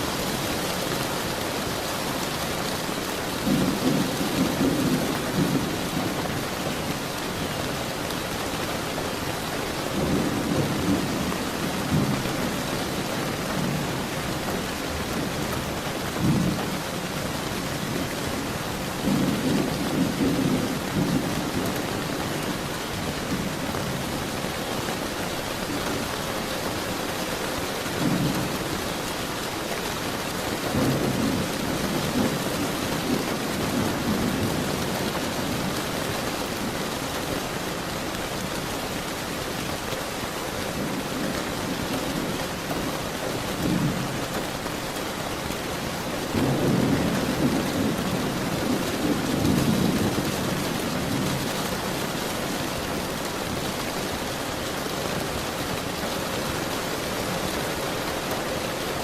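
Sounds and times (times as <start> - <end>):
steady rain falling: 0.0 - 59.0
thunder rumbling: 3.3 - 6.8, 40.7 - 53.8.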